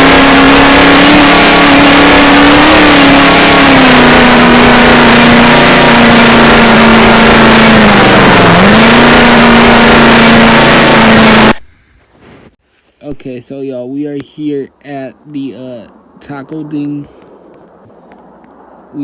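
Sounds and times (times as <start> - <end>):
car engine running: 0.0 - 11.6
road noise: 0.0 - 19.0.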